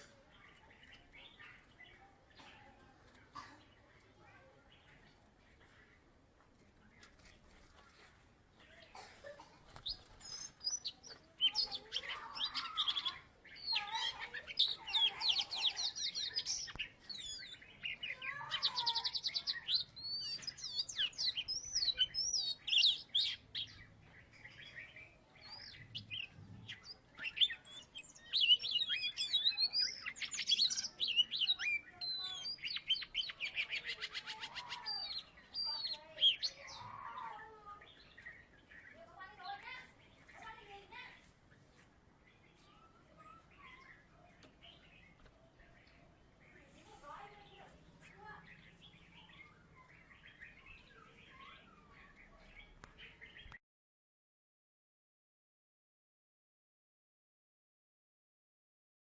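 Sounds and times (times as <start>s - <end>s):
bird singing whistles and trills: 9.9s - 23.8s, 24.5s - 36.8s.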